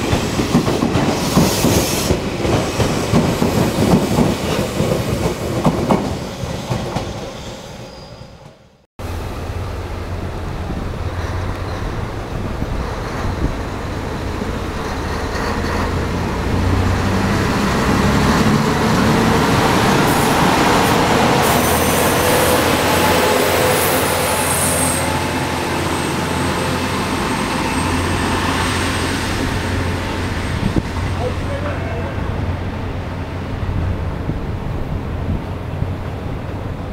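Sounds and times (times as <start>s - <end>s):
train engine hum: 0.0s - 36.9s
wheel and rail hiss: 1.0s - 3.6s.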